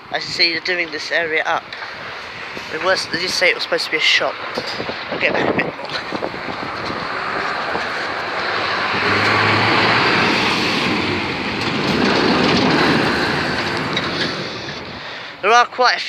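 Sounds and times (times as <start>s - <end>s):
lorry driving past: 6.0s - 15.3s.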